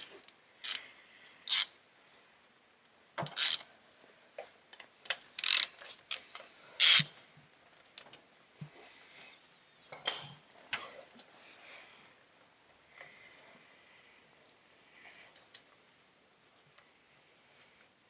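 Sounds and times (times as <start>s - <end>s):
connector scrapes and clicks: 5.4s - 6.2s.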